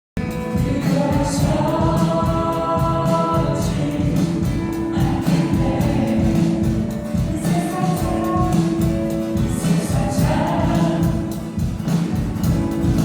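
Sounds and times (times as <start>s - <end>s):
voices singing together: 0.2s - 12.8s
instrumental backing with beat: 0.2s - 13.0s.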